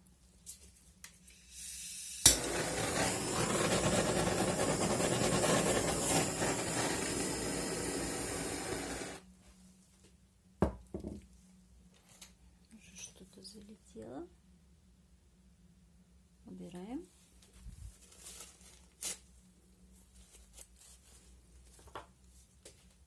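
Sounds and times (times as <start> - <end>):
rushing air noise: 2.3 - 9.2.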